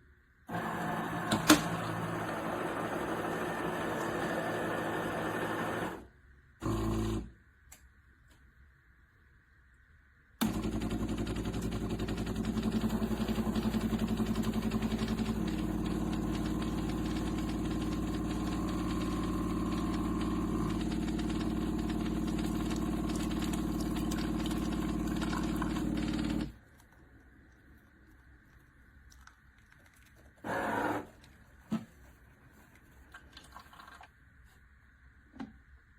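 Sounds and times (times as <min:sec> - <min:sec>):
coffee grinder motor grinding beans: 0:00.5 - 0:06.0, 0:12.7 - 0:26.5.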